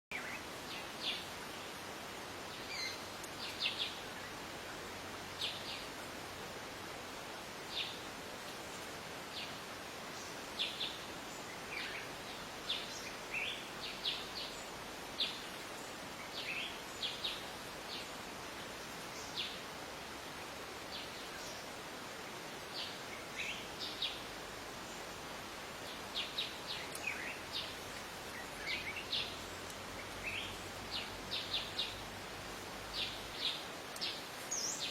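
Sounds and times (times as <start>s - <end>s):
steady background hiss: 0.1s - 34.9s
birds chirping: 22.6s - 34.9s.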